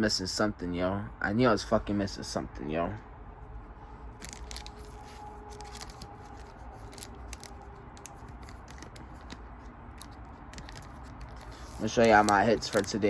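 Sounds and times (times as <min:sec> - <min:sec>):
faint steady hum: 0:00.0 - 0:13.0
cards clicking and sliding: 0:04.2 - 0:13.0.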